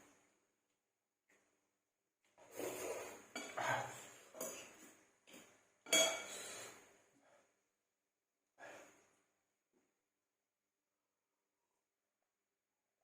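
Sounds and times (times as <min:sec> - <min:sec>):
cutlery scraping a dish: 0:02.5 - 0:04.8, 0:05.9 - 0:06.4.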